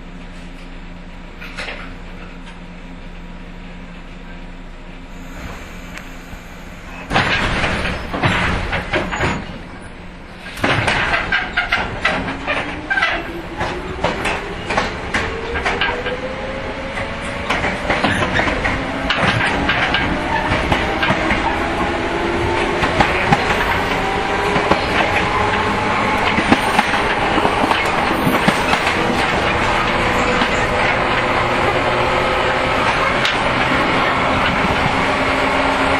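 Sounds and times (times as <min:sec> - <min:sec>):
train wheel rumble: 0:00.0 - 0:35.9
electric train motor whine: 0:05.0 - 0:08.3
rail-joint clicks: 0:05.2 - 0:31.6.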